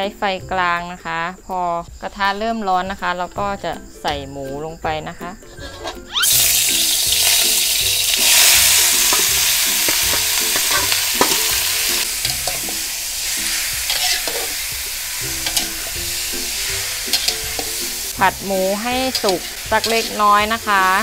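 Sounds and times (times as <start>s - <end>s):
meat sizzling in hot oil: 6.1s - 21.0s
metal spatula scraping pan: 8.2s - 21.0s.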